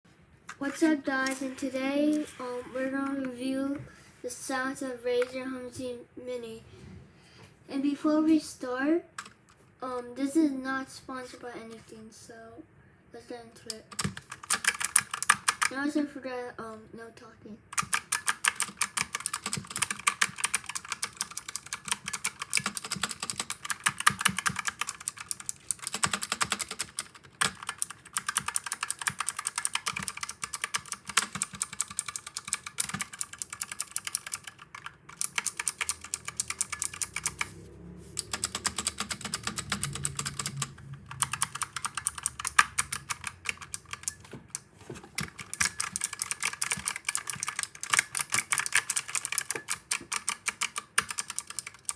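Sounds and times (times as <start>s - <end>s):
mechanical keyboard typing: 13.7s - 15.8s, 17.7s - 37.6s, 38.2s - 51.9s.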